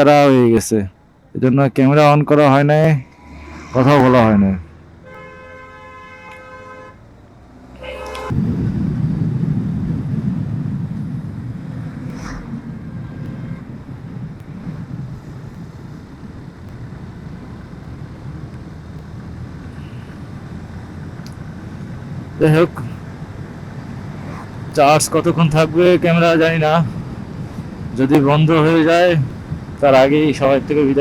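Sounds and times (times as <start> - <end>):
road rumble of moving vehicle: 0.0 - 31.0
vehicle horn blasts: 5.0 - 8.4.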